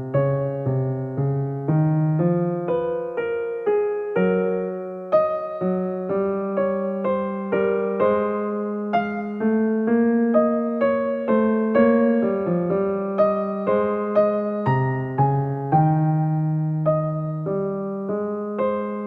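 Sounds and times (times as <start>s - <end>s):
electric piano chords: 0.0s - 19.0s.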